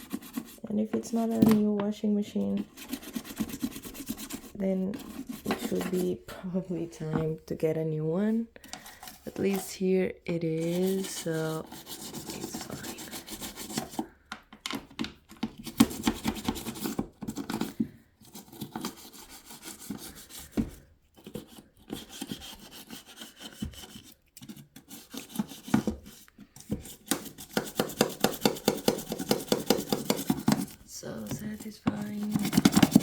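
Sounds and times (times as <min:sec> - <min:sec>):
toothbrush scrubbing: 0:00.0 - 0:01.4, 0:02.6 - 0:06.2, 0:10.4 - 0:14.1, 0:15.7 - 0:20.6, 0:21.2 - 0:33.0.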